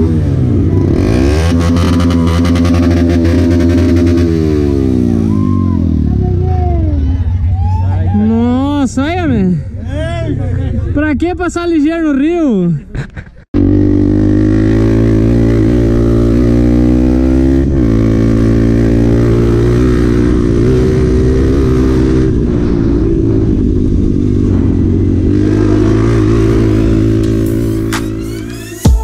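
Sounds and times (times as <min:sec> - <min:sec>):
motorcycle engine running hard: 0:00.0 - 0:07.2, 0:13.6 - 0:28.2.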